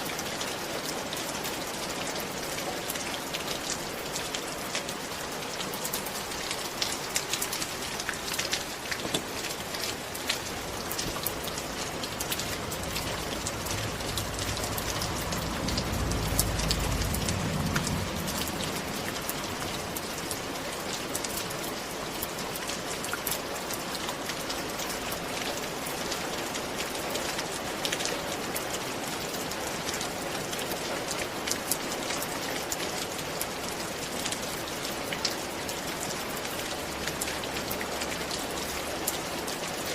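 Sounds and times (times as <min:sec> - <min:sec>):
rain falling: 0:00.0 - 0:39.9
low rumble: 0:11.3 - 0:20.3.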